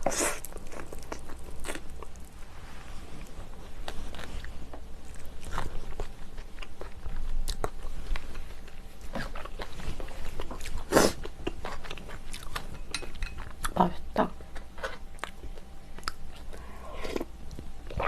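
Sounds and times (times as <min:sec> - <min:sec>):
person chewing food: 0:00.0 - 0:02.4, 0:03.2 - 0:13.8, 0:14.4 - 0:18.0.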